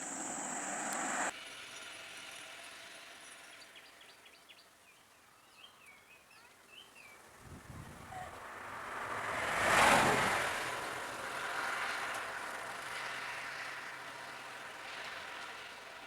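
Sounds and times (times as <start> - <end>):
small birds chirping: 3.3 - 7.3.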